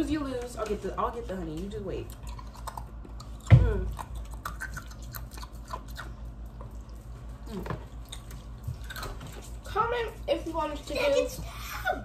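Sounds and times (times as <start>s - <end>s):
crunchy chewing: 2.0s - 9.7s.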